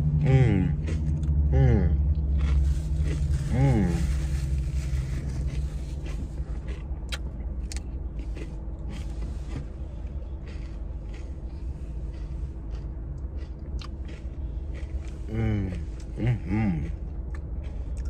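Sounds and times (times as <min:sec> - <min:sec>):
cone crunching while chewed: 0:00.1 - 0:18.0.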